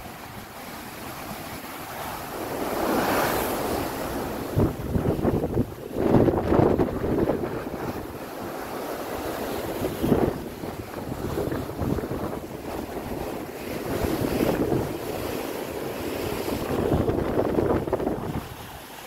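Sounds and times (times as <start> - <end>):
sea waves rushing: 0.0 - 19.0
wind buffeting microphone: 2.4 - 18.9.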